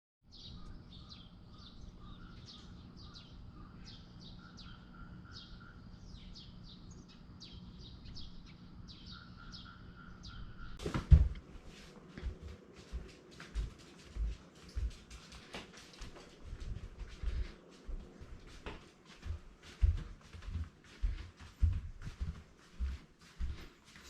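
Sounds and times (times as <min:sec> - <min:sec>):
small birds chirping: 0:00.2 - 0:10.8.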